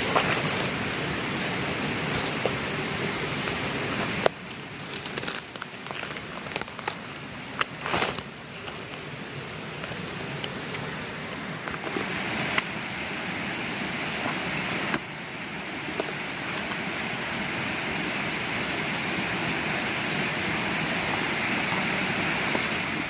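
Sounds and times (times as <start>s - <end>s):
steady rushing noise: 7.2s - 23.0s.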